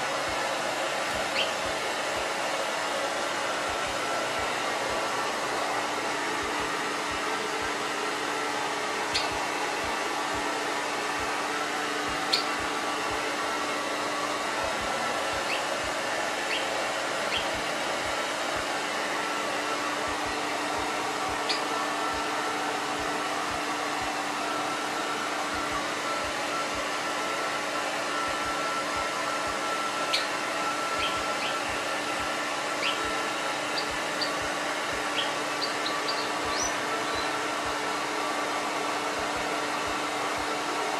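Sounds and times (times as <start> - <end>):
hair dryer running: 0.0 - 40.9
bird chirping sharply: 1.3 - 1.6, 9.1 - 9.4, 16.5 - 16.7, 17.3 - 17.5, 32.8 - 33.0, 35.2 - 37.3.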